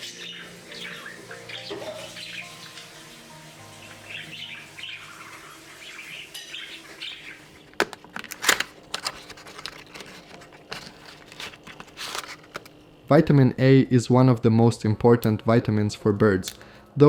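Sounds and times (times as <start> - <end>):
small birds chirping: 0.0 - 7.7.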